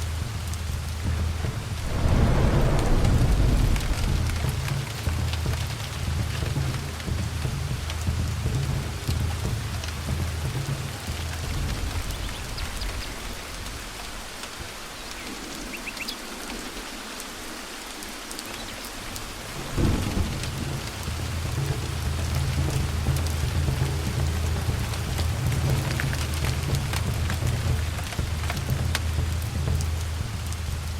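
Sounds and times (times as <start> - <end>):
steady rain: 0.0 - 30.9
rolling thunder: 1.3 - 7.4, 19.5 - 28.8
sharp thunderclap: 1.7 - 6.7, 19.6 - 21.5.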